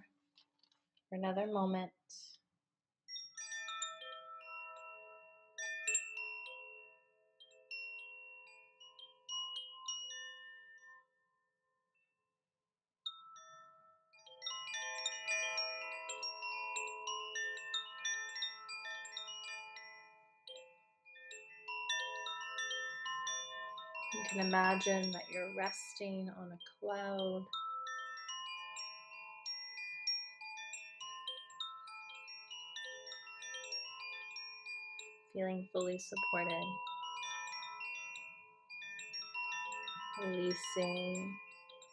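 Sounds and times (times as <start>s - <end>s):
wind chimes ringing: 3.1s - 11.0s, 13.1s - 41.9s
chimes ringing: 24.0s - 25.9s, 35.8s - 41.9s.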